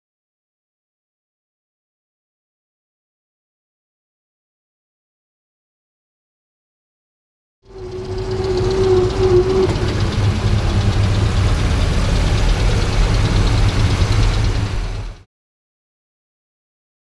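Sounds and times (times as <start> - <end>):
engine low rumble: 7.6 - 15.2
steady whine: 7.7 - 15.2.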